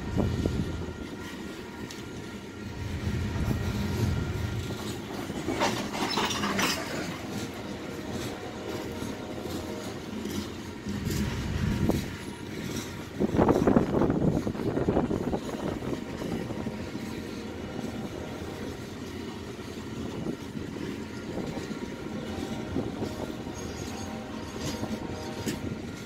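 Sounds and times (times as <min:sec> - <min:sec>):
train cars rumbling past: 0:00.0 - 0:26.0.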